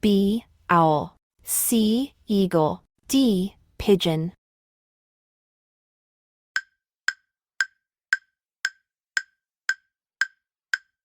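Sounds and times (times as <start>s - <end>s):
clock-like timer ticks: 6.6s - 11.0s.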